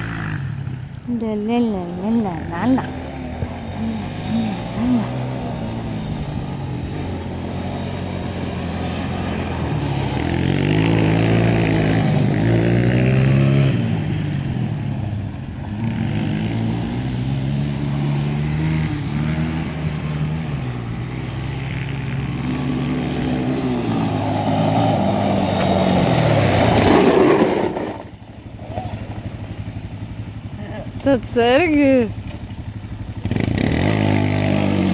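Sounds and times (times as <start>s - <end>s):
motorcycle engines revving: 0.0s - 34.9s.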